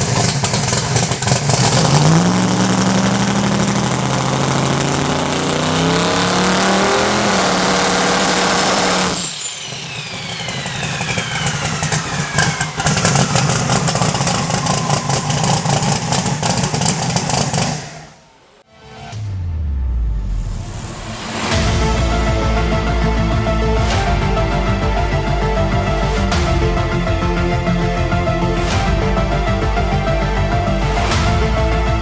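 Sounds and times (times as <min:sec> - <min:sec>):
race engine running hard: 0:00.0 - 0:17.8
engine choppy idle: 0:00.0 - 0:18.2
turbocharger whine: 0:00.0 - 0:18.4.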